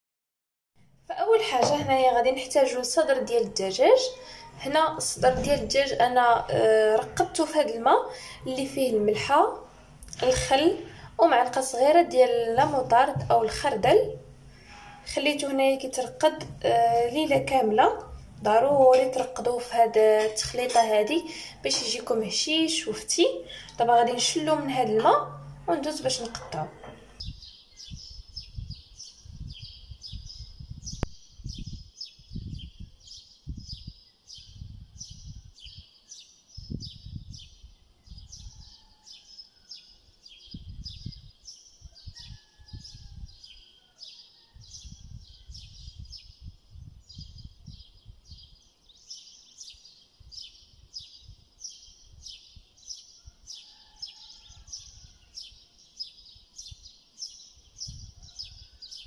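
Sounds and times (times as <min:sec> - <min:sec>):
bird chirping: 0:01.4 - 0:42.7.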